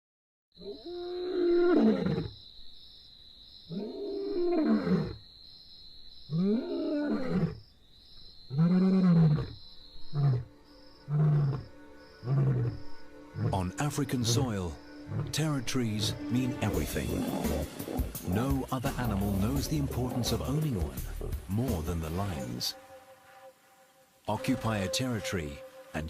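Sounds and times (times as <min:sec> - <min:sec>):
lion roaring: 0:11.1 - 0:15.6, 0:16.7 - 0:21.5.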